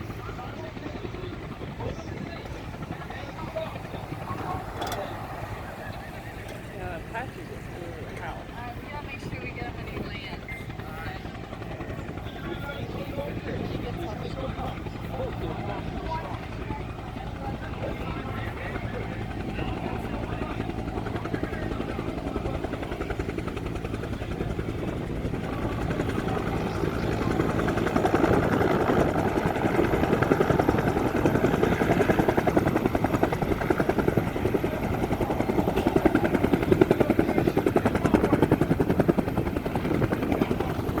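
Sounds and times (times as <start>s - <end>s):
helicopter rotor beating: 0.0s - 41.0s
helicopter turbine: 0.0s - 41.0s.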